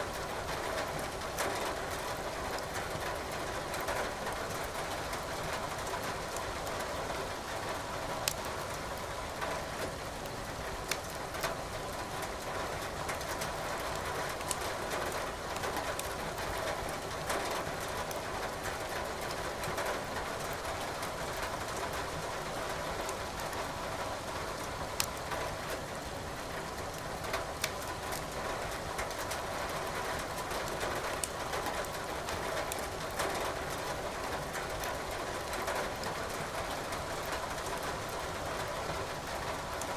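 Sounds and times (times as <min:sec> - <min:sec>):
wood fire crackling: 0:08.2 - 0:08.5, 0:10.9 - 0:11.2, 0:25.0 - 0:25.2, 0:26.9 - 0:28.3, 0:32.3 - 0:32.8.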